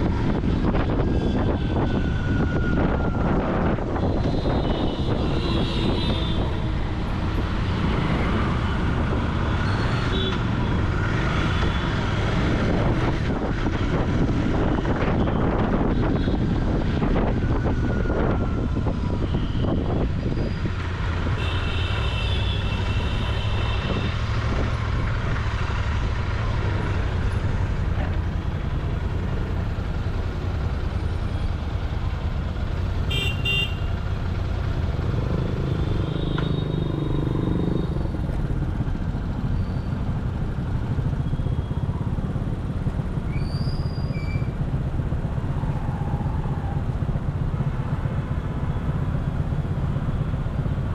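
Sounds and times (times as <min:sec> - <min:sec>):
vehicle horn honking: 0:33.1 - 0:33.9.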